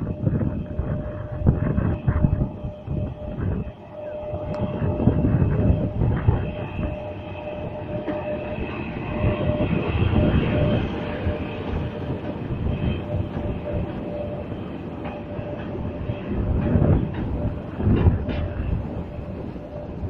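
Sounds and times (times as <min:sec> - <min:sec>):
steady locomotive whine: 0:00.0 - 0:20.0
train wheels rumbling on track: 0:00.0 - 0:20.0.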